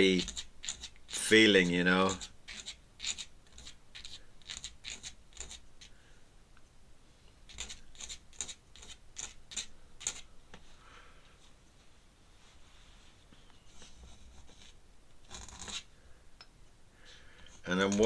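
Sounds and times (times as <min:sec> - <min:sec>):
pen scratching on paper: 0:00.0 - 0:05.9, 0:07.5 - 0:10.3, 0:13.7 - 0:15.9, 0:17.6 - 0:18.0.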